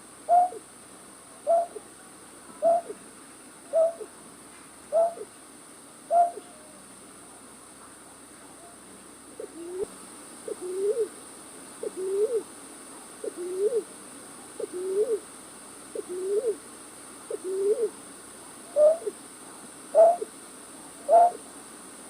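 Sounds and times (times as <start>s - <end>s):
low hooting bird call: 0.3s - 0.6s, 1.5s - 1.8s, 2.6s - 3.0s, 3.7s - 4.1s, 4.9s - 5.3s, 6.1s - 6.7s, 18.7s - 19.2s, 20.0s - 20.3s, 21.1s - 21.4s.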